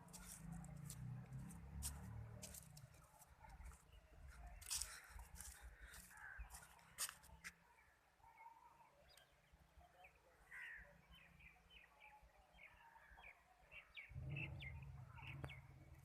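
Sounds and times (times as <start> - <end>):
birds chirping: 9.0 - 16.0
low rumble: 14.1 - 16.0.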